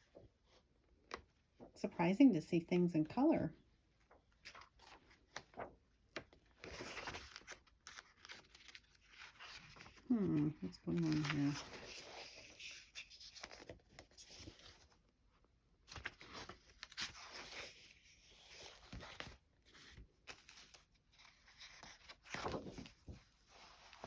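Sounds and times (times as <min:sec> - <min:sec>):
paper rustling and crackling: 0:04.0 - 0:15.0, 0:15.9 - 0:24.0.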